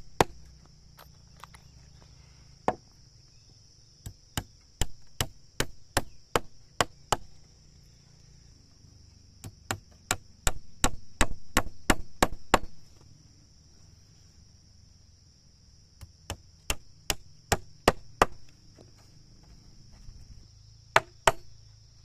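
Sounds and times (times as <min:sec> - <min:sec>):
wood being chopped with a blade: 0:00.0 - 0:00.6, 0:04.0 - 0:07.3, 0:09.4 - 0:12.8, 0:16.0 - 0:19.0, 0:20.9 - 0:21.5
high insect buzz: 0:00.0 - 0:22.0.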